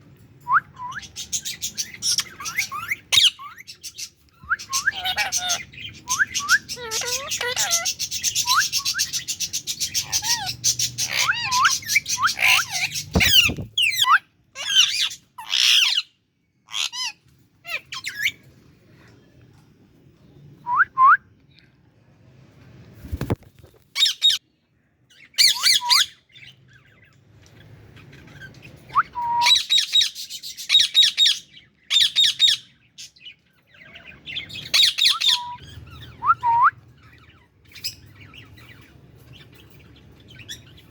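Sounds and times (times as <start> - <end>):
parakeets squawking: 1.1 - 4.1, 4.7 - 16.1, 16.7 - 18.4, 33.8 - 36.2.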